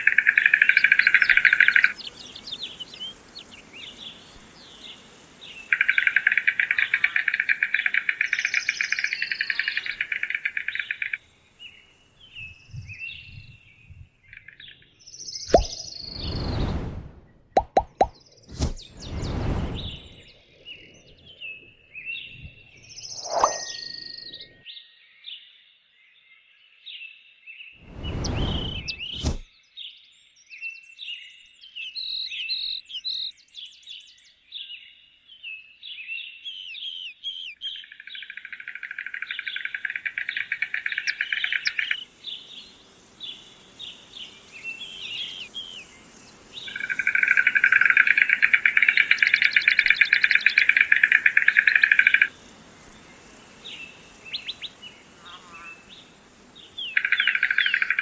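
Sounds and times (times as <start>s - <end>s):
fast rattling bird trills: 0.0s - 13.7s, 37.8s - 58.0s
birds chirping: 0.0s - 16.5s, 17.6s - 24.6s, 27.9s - 29.4s, 37.5s - 58.0s.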